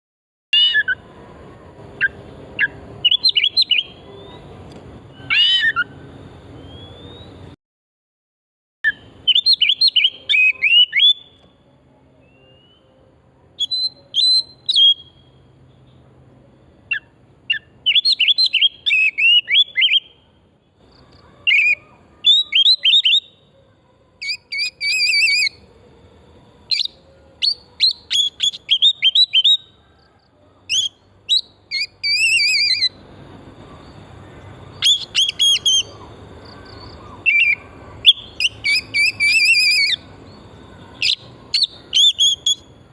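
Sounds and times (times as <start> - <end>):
bird singing whistled chattering notes: 2.0 - 4.5, 8.9 - 11.4, 13.6 - 15.3, 16.9 - 20.2, 26.7 - 29.7, 34.7 - 40.1, 41.0 - 42.8.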